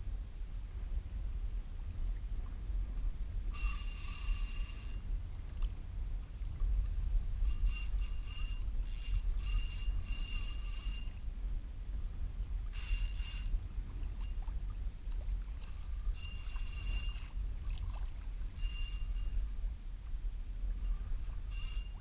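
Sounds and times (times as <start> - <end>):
low steady rumble: 0.0 - 22.0
fishing reel whirring: 3.5 - 5.1, 7.2 - 11.3, 12.6 - 14.5, 15.6 - 17.4, 18.5 - 19.6, 20.8 - 22.0.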